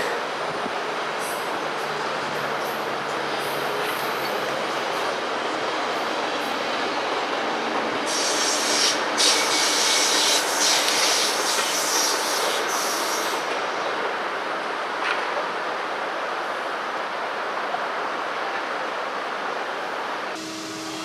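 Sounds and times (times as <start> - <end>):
train running on rails: 0.0 - 21.0
wheels grinding on rail hiss: 8.0 - 13.8.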